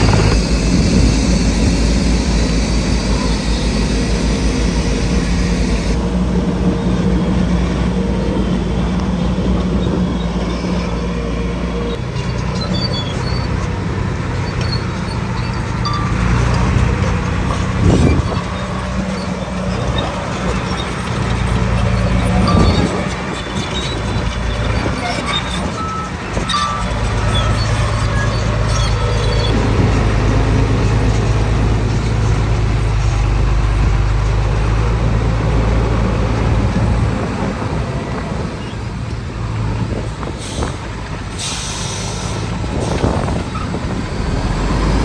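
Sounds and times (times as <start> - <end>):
heavy machinery diesel engine: 0.0 - 45.0.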